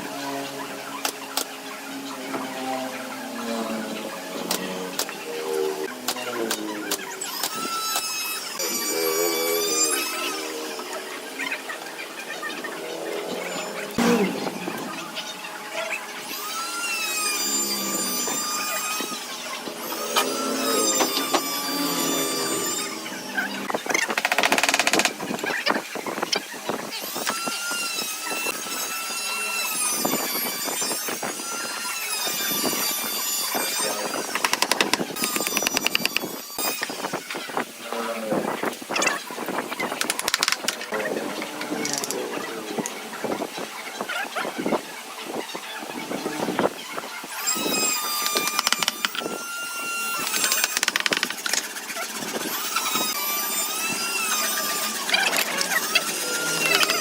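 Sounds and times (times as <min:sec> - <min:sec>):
power tool motor whining: 0:00.0 - 0:43.6, 0:45.8 - 0:57.0
rapid rattling and clicking: 0:23.8 - 0:25.5, 0:40.0 - 0:40.8, 0:50.3 - 0:52.4.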